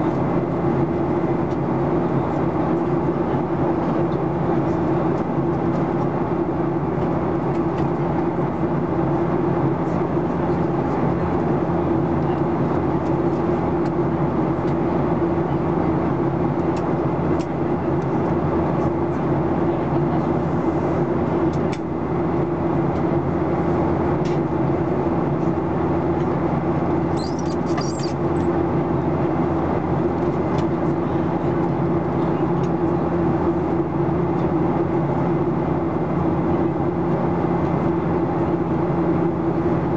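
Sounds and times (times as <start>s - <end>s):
airplane cabin drone: 0.0s - 39.9s
faint high chirp: 27.1s - 28.2s.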